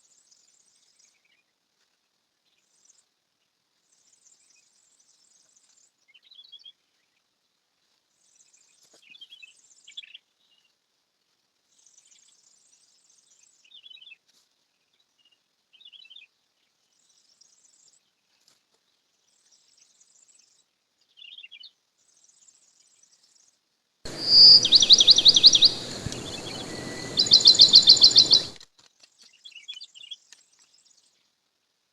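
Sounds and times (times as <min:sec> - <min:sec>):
bird chirps: 0:24.1 - 0:28.6
high insect-like trill: 0:24.1 - 0:28.6.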